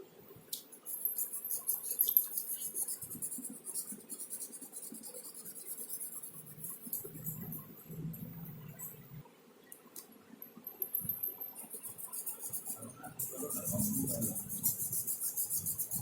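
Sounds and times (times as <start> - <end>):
drawing tool scratching paper: 0.9 - 7.6, 11.7 - 16.0.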